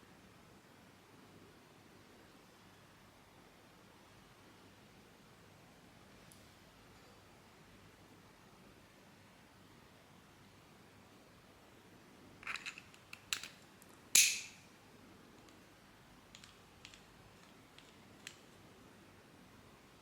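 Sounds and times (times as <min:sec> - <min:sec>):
plastic parts clicking together: 0:12.4 - 0:13.6, 0:14.2 - 0:14.6, 0:16.3 - 0:18.4.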